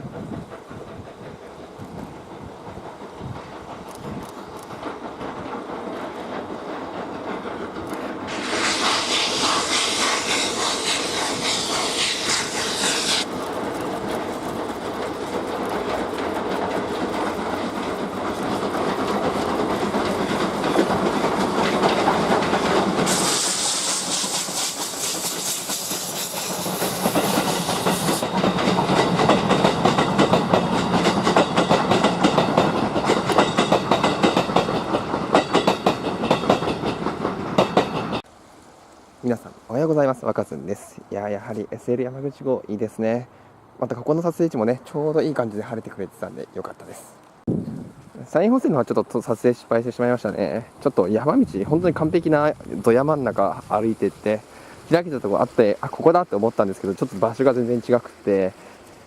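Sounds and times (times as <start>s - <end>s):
coaches clattering over rail joints: 0.0s - 8.6s, 13.1s - 38.3s
steam hissing: 0.0s - 38.3s, 49.1s - 59.0s.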